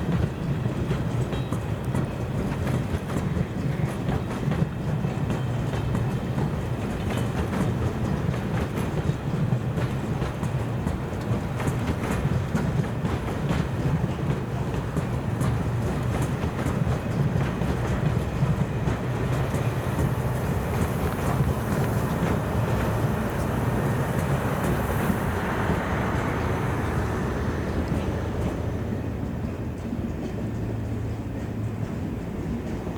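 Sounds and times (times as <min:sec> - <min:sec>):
train wagons rumbling on rails: 0:00.0 - 0:32.9
wheels clicking over rail joints: 0:00.0 - 0:32.9.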